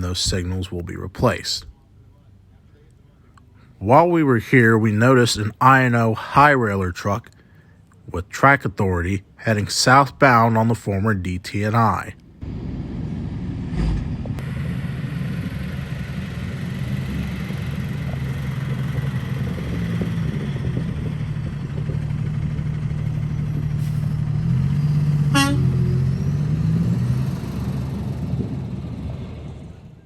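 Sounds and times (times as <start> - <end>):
truck engine hum: 0.0 - 30.0
short horn toot: 25.2 - 26.1.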